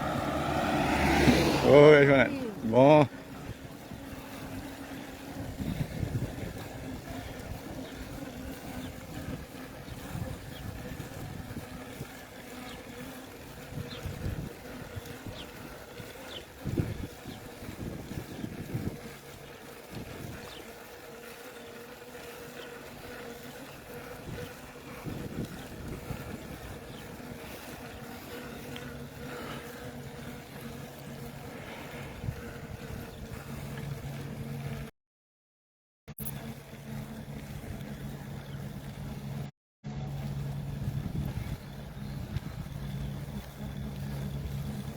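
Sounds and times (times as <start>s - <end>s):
wind rumbling on microphone: 0.0s - 20.6s, 23.6s - 30.6s, 31.2s - 34.8s, 40.0s - 44.9s
vehicle engine running: 0.0s - 20.7s, 36.2s - 44.9s.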